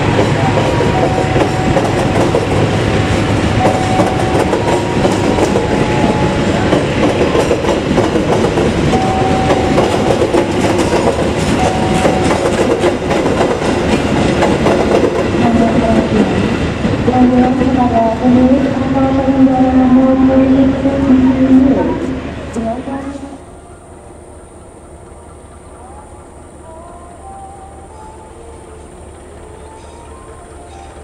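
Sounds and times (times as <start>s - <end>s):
train wheels clattering over joints: 0.1s - 15.4s.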